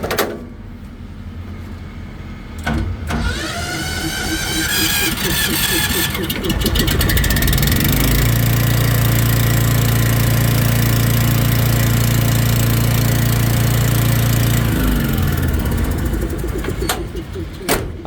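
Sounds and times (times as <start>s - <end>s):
truck engine idling: 3.2s - 18.0s
steady low hum: 3.4s - 12.6s, 13.4s - 18.0s.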